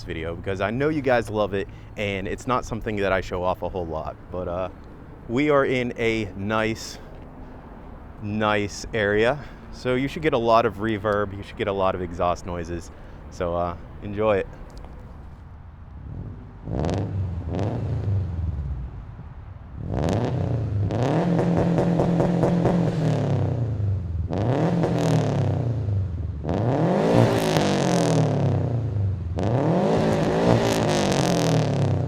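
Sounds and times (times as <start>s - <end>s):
car engine revving: 0.0s - 15.4s, 16.0s - 18.9s, 19.8s - 32.0s
launch limiter crackling: 0.0s - 15.4s.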